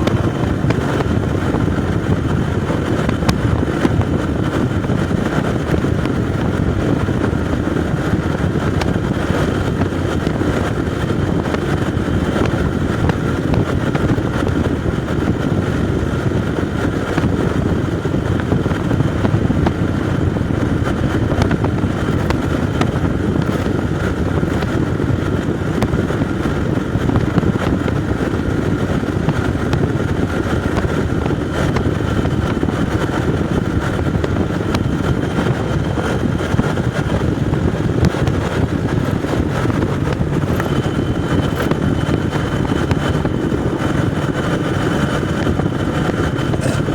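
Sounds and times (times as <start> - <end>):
rushing noise: 0.0 - 5.2
motorcycle engine running: 0.0 - 46.9.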